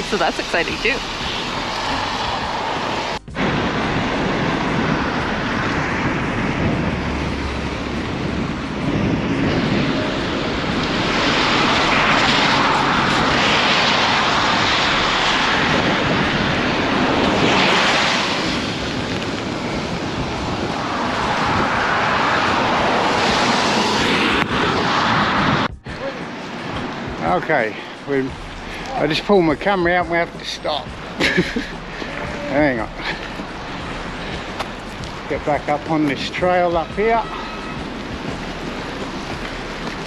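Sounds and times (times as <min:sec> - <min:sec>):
wind rushing over microphone: 0:00.0 - 0:40.0.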